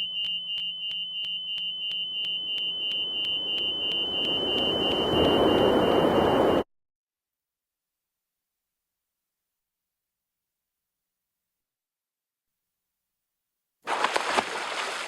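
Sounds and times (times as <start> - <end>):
high-pitched warning alarm beeping: 0.0 - 6.6
rushing noise: 2.8 - 6.6.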